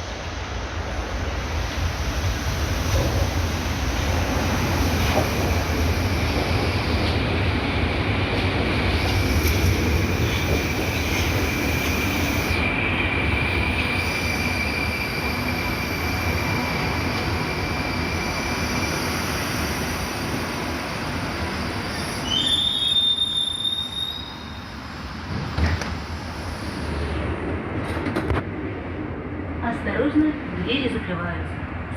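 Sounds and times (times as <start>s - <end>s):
train rumble: 0.0s - 22.6s, 24.9s - 31.9s
train wheel squeal: 8.9s - 27.1s.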